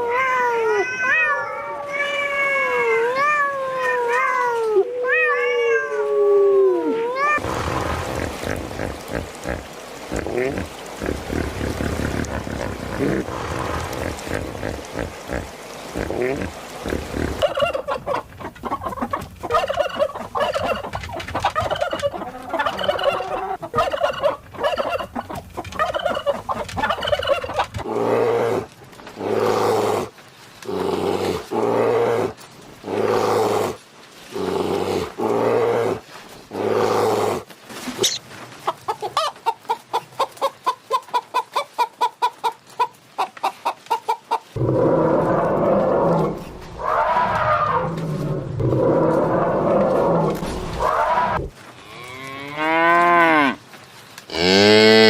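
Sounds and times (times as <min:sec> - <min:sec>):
domestic fowl calling: 0:16.8 - 0:27.7
rapid clucking: 0:16.8 - 0:27.8.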